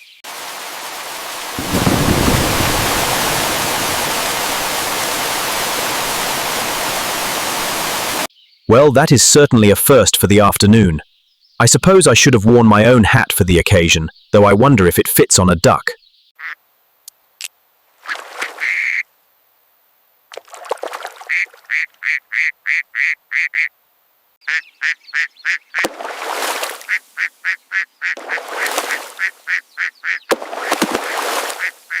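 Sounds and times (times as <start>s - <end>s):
bursts of rushing noise: 0.3s - 8.3s
ducks quacking: 26.9s - 30.3s, 31.1s - 32.0s.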